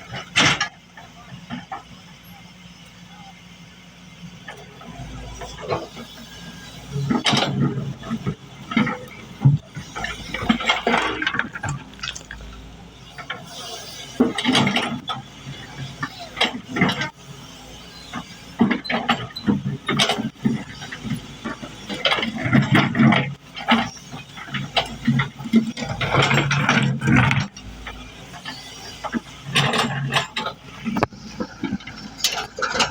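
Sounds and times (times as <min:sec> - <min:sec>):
excavator engine running: 0:00.0 - 0:32.9
metallic clanking and rattling: 0:18.1 - 0:32.9.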